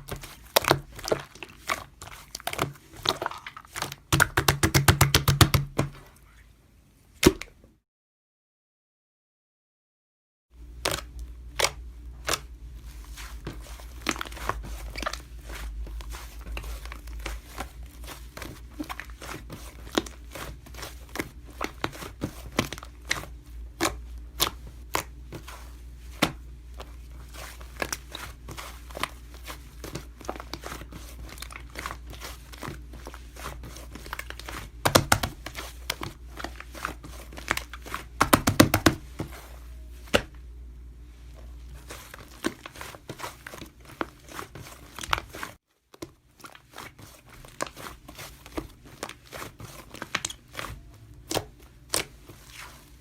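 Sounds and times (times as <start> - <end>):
crinkling handling noises: 0.0 - 4.4, 10.8 - 53.0.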